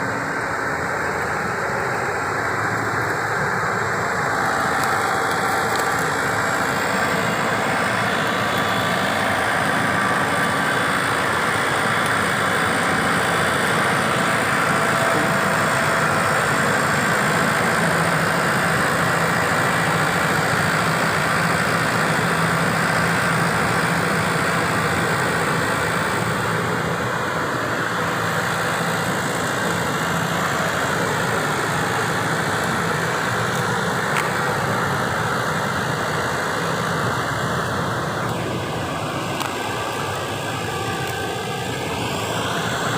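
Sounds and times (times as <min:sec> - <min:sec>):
sprayer engine and blower: 0:00.0 - 0:42.9.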